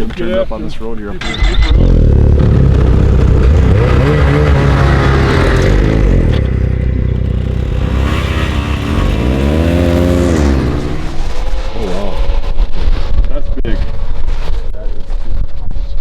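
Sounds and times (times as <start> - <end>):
snowmobile engine running: 1.2 - 13.0.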